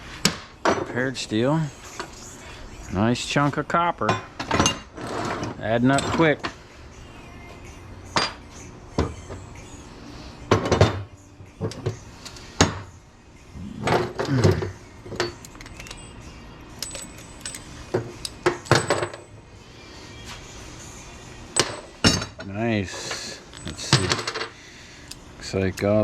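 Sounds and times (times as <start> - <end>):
metal pieces clanking: 13.8 - 16.1, 16.8 - 19.3, 23.1 - 24.5.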